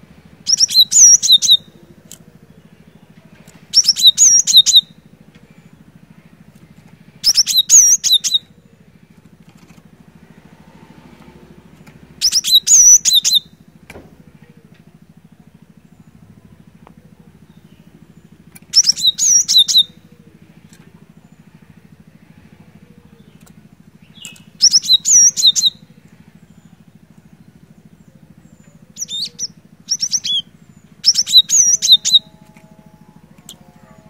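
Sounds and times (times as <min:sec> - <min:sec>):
steady low hum: 0:00.0 - 0:34.0
bird singing high notes: 0:12.2 - 0:13.6, 0:28.0 - 0:34.0.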